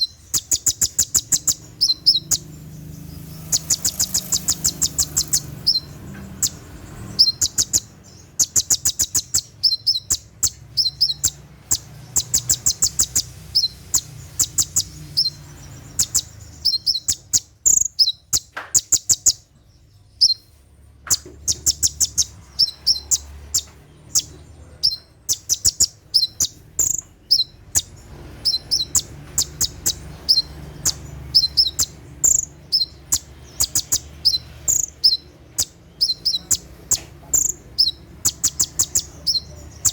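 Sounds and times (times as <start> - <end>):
sunbird singing high chirps: 0.0 - 39.9.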